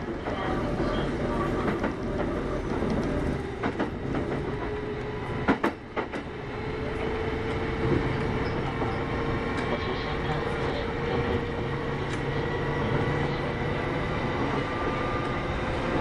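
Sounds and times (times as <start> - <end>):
rail-joint clacks: 0.0 - 6.3
train wheels rumbling on rail: 0.0 - 16.0.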